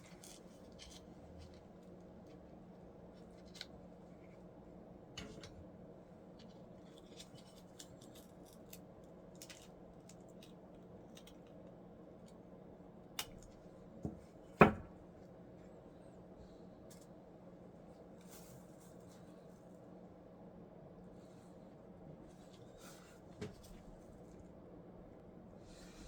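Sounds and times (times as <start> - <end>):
low steady hum: 0.0 - 26.0
knocks on workbench: 14.0 - 14.9.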